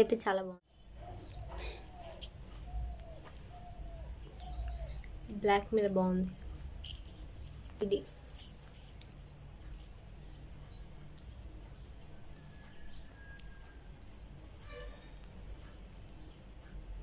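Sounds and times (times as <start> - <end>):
faint birds chirping: 0.0 - 17.0
low steady hum: 0.0 - 17.0.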